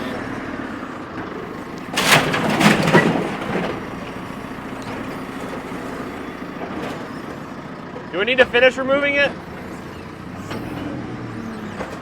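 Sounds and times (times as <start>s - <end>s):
clattering creaking knocks: 0.1s - 8.1s.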